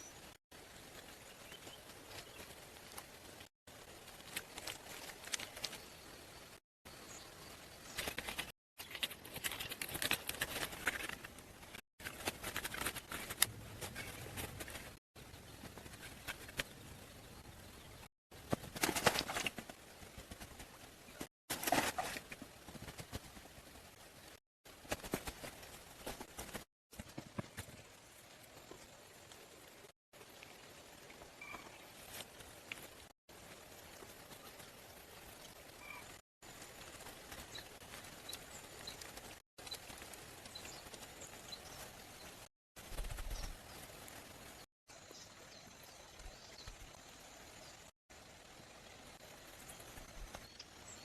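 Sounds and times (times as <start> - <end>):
steady forest hiss: 13.1 - 51.0.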